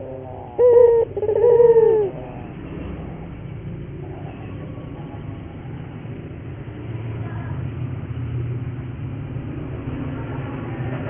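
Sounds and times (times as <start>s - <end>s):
dove cooing: 0.0s - 2.5s.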